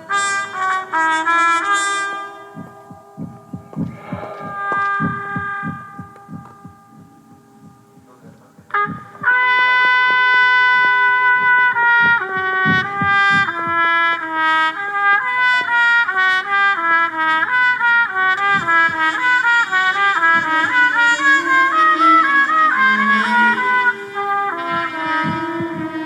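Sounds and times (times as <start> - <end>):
solo trumpet: 0.0 - 26.0
low throbbing pulse: 2.5 - 9.4, 11.3 - 14.1, 18.5 - 26.0.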